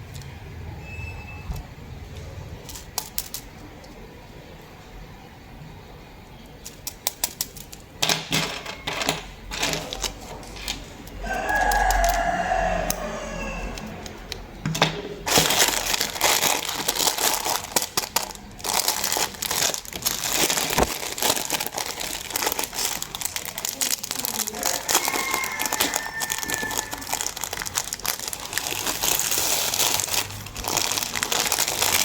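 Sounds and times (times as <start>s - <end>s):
pitched squeak: 0.8s - 1.7s, 24.8s - 27.4s
plastic wrap crinkling: 15.2s - 32.0s.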